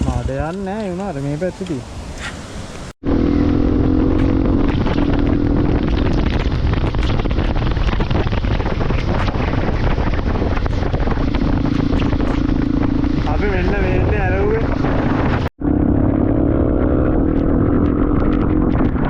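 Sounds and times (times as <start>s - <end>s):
motorcycle engine hum: 0.0s - 19.0s
wind rushing over microphone: 0.0s - 19.0s.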